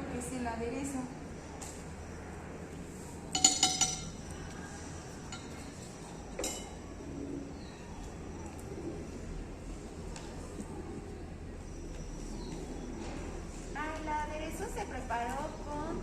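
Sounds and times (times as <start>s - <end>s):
utensil clinking against dish: 3.4s - 4.2s, 6.4s - 6.8s.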